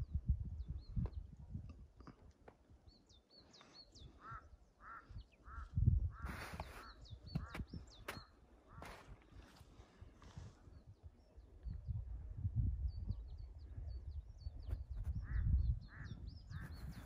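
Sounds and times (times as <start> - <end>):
wind buffeting microphone: 0.0 - 2.1, 4.0 - 17.0
birds chirping: 2.0 - 9.5, 12.8 - 17.0
lower bird calls: 3.0 - 9.5, 13.2 - 17.0.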